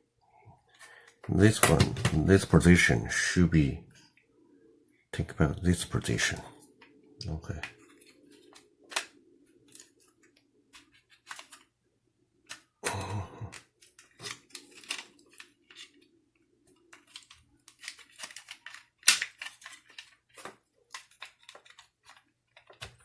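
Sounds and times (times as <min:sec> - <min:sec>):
plastic parts clicking: 0:08.5 - 0:09.1, 0:13.5 - 0:16.0, 0:16.8 - 0:23.0.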